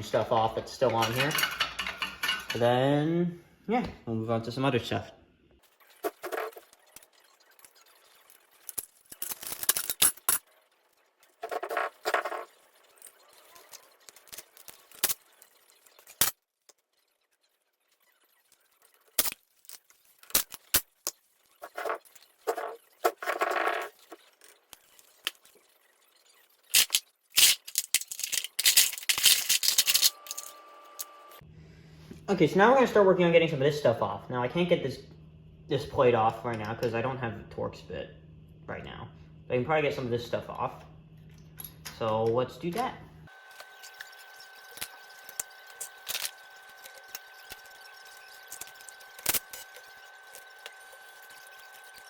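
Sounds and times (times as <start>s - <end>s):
hand tools clinking on metal parts: 0.8s - 2.8s, 26.8s - 30.5s.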